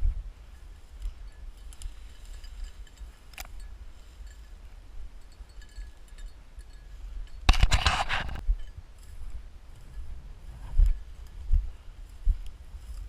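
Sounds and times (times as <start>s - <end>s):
wind rumble on microphone: 0.0s - 13.0s
light clinks: 0.5s - 10.1s.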